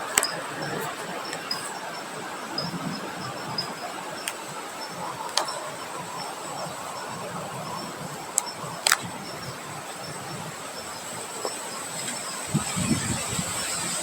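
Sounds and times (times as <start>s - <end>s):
wind blowing: 0.0s - 14.0s
sharp clicks: 8.4s - 9.1s.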